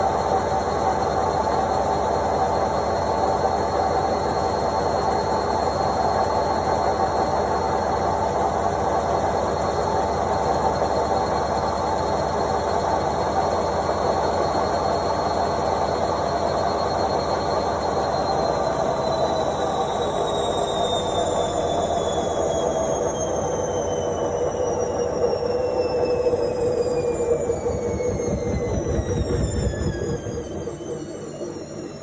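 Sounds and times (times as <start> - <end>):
washing machine spinning: 0.0 - 32.0
high whine: 18.1 - 32.0.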